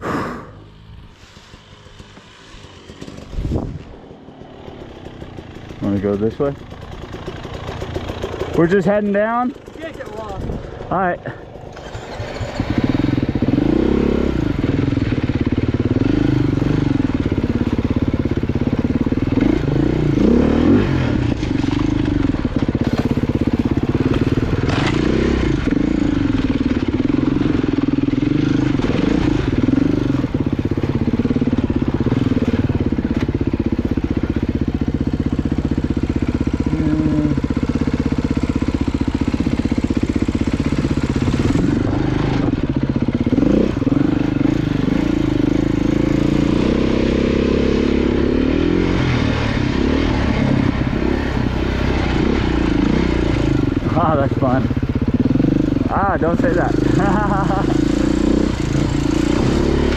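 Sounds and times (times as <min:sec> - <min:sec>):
off-road motorcycle engine revving: 0:00.0 - 0:59.9
knocks and clatter over rough ground: 0:01.1 - 0:12.8, 0:21.0 - 0:36.6.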